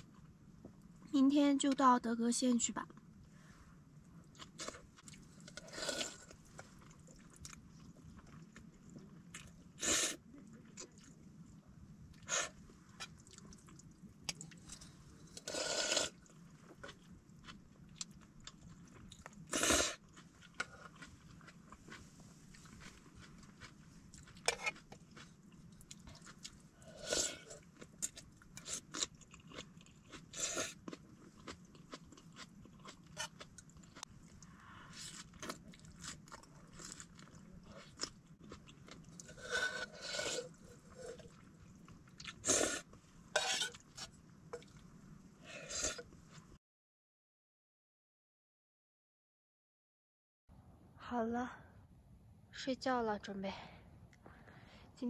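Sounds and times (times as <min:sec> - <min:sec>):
person chewing and crunching: 0:04.3 - 0:09.9, 0:13.0 - 0:44.8.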